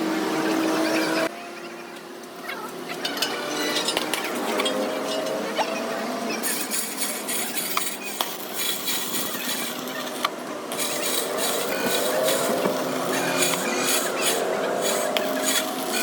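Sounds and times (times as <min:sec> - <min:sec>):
steady background noise: 0:00.0 - 0:16.0
metal tools clinking and scraping: 0:03.0 - 0:05.5, 0:06.4 - 0:16.0.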